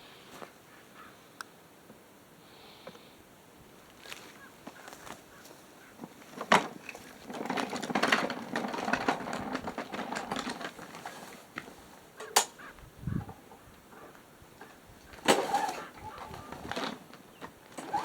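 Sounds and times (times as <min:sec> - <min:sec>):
clatter of things handled: 0:04.0 - 0:12.7, 0:14.6 - 0:18.0.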